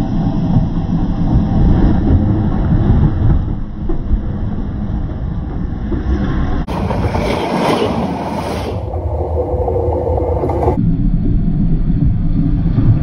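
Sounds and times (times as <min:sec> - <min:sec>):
train wheels rumbling on rails: 0:00.0 - 0:10.8.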